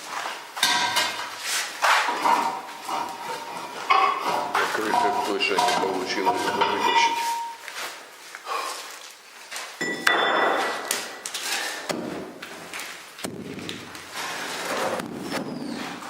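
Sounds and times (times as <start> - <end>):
handling knocks and scraping: 0.0 - 8.0, 8.8 - 16.0.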